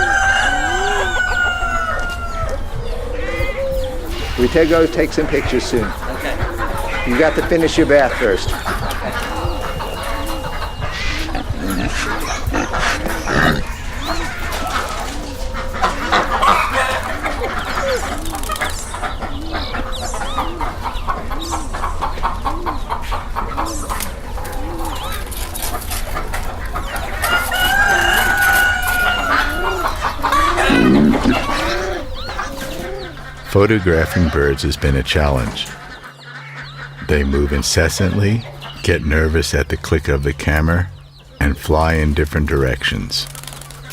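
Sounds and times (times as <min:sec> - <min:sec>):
rooster crowing: 0:00.0 - 0:07.0, 0:27.0 - 0:33.5
chickens clucking: 0:00.0 - 0:43.9
low repeating call: 0:27.3 - 0:34.3.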